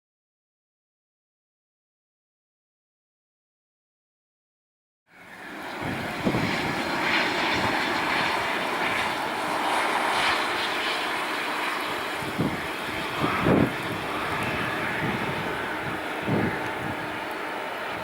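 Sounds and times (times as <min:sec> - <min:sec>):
jet engines roaring: 0:05.1 - 0:18.0.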